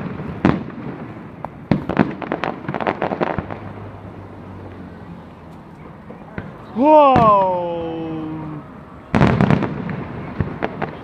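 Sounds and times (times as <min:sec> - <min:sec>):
fireworks crackling pops: 0:00.0 - 0:03.9, 0:09.1 - 0:11.0
fireworks rumble: 0:00.0 - 0:11.0.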